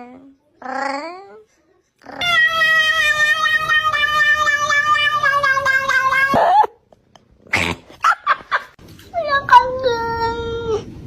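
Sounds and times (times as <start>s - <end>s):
cat yowling: 2.1s - 6.7s.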